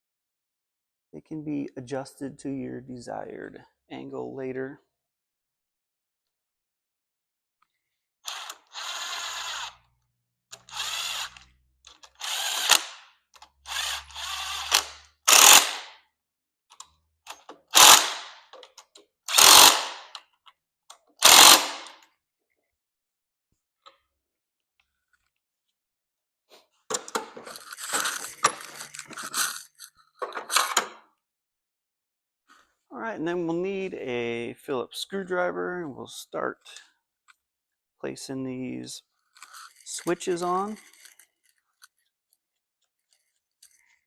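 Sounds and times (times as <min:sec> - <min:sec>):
cordless power driver bursts: 0:12.1 - 0:13.1, 0:13.7 - 0:15.9, 0:17.7 - 0:18.4, 0:19.3 - 0:20.1, 0:21.2 - 0:22.0.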